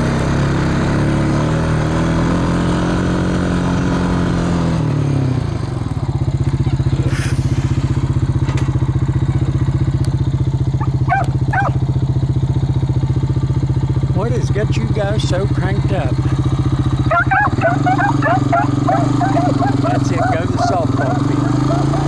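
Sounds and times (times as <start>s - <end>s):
vehicle engine idling: 0.0s - 22.0s
dog yelping: 10.8s - 11.8s, 17.0s - 22.0s.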